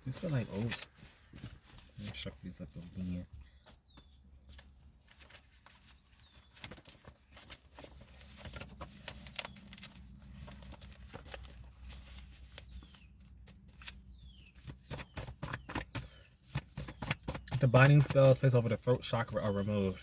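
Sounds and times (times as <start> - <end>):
bird chirping: 2.9 - 4.6, 5.8 - 6.6, 8.9 - 10.0, 12.4 - 20.0.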